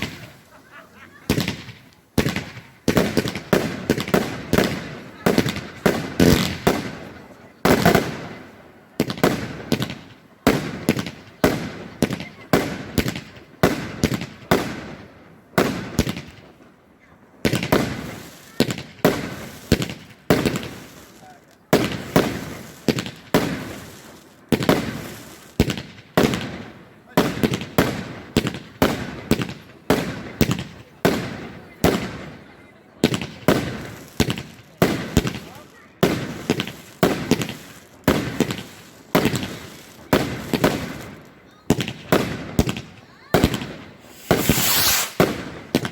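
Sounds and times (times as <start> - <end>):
fireworks bangs echoing: 0.0 - 16.6, 17.4 - 45.9.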